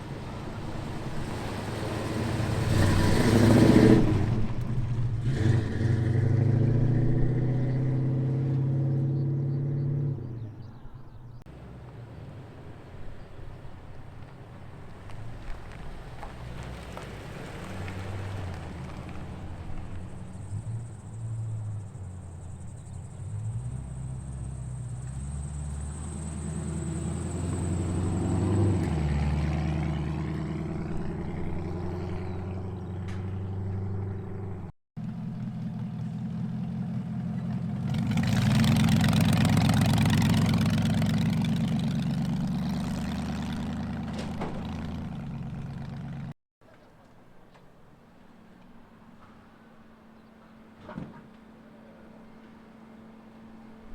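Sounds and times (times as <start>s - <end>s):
loud car passing: 0.0s - 10.6s, 11.5s - 34.7s, 35.4s - 46.4s
car exhaust rumbling: 11.5s - 46.4s.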